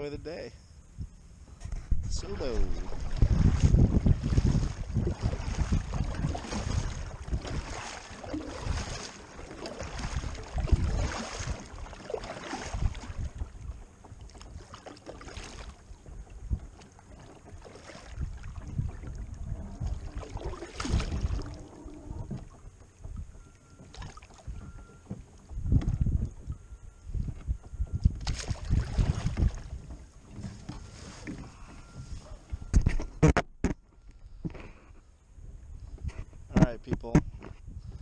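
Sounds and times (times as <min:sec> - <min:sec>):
wind gusting on microphone: 0:00.0 - 0:13.8, 0:18.1 - 0:23.5, 0:25.5 - 0:33.2, 0:35.4 - 0:38.0.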